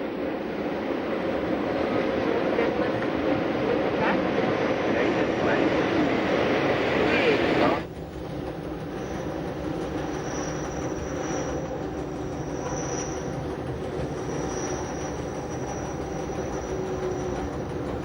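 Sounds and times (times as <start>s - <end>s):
electric train rumbling on rails: 0.0s - 18.0s
high wheel squeal: 8.8s - 18.0s.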